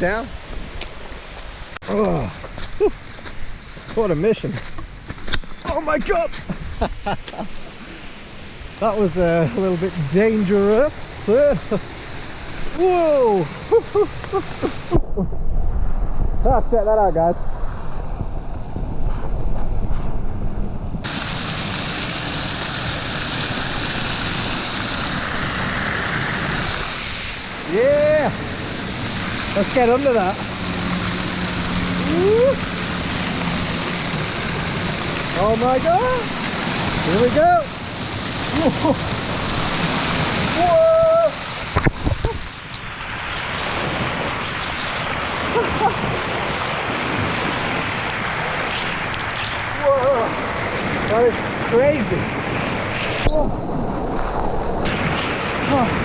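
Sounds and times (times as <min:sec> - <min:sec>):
waterfall rushing: 0:05.7 - 0:15.2, 0:21.0 - 0:56.0.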